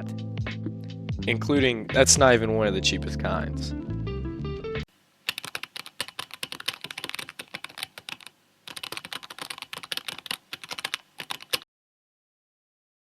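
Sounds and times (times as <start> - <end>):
typing on computer keyboard: 5.3 - 11.6.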